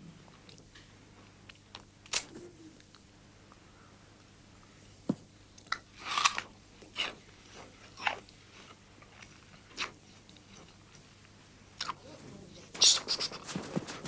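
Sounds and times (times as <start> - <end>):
person chewing crunchy fruit: 5.6 - 11.0.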